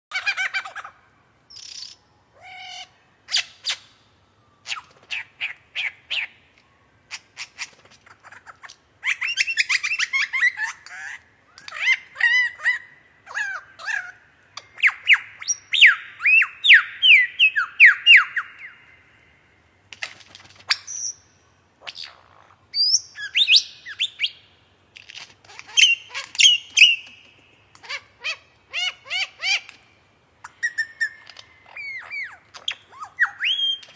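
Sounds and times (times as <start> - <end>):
songbird singing: 0.1 - 33.9.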